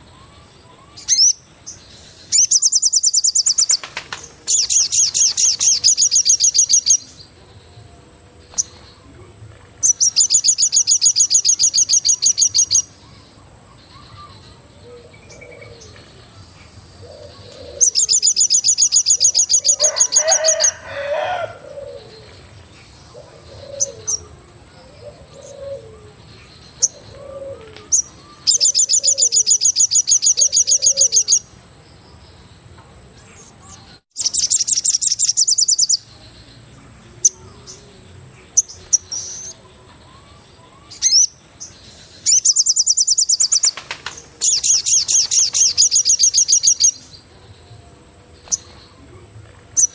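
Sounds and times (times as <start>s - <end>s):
high pulsed bird trill: 0.0s - 9.1s, 9.8s - 31.6s, 33.4s - 47.6s
low cooing bird notes: 14.0s - 16.2s, 17.0s - 18.4s, 19.1s - 31.4s.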